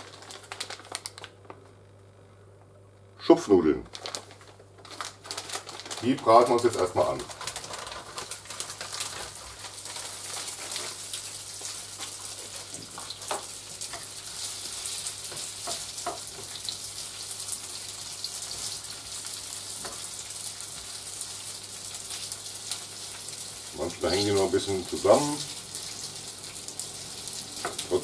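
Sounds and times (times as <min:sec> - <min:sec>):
dumplings sizzling in oil: 0:08.0 - 0:28.0.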